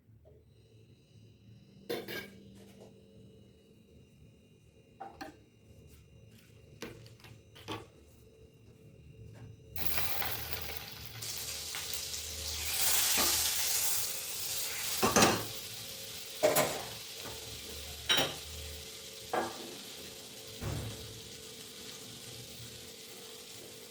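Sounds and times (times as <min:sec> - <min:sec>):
food sizzling in a pan: 0:09.8 - 0:23.9.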